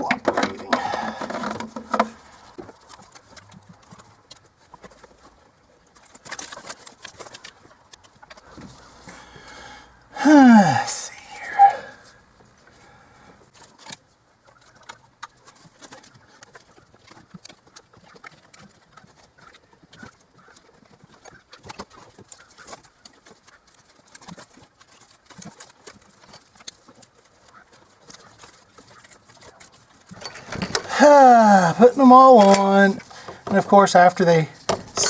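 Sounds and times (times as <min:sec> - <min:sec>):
engine parts clicking and tapping: 0:00.0 - 0:08.8, 0:30.0 - 0:30.9, 0:31.8 - 0:35.0.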